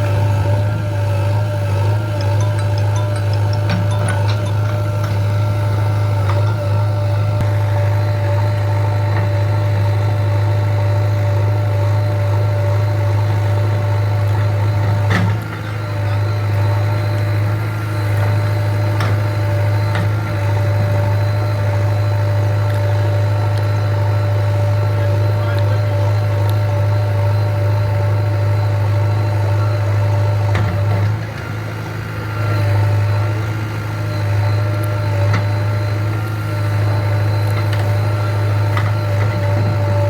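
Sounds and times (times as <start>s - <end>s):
backhoe engine running: 0.0s - 40.0s.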